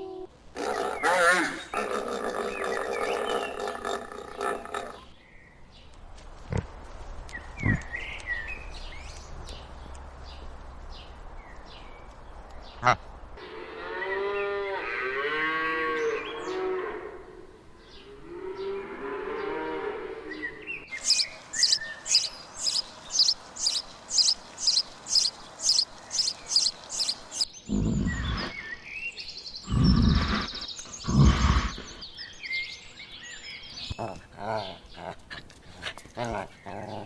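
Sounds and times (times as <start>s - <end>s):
arching wavering animal calls: 0.6s - 5.1s, 23.6s - 28.6s, 29.6s - 32.1s
loud deep animal calls: 0.6s - 5.1s, 27.7s - 28.6s, 29.6s - 32.1s
sharp high animal chirps: 0.6s - 5.1s, 21.0s - 28.6s, 29.6s - 32.2s.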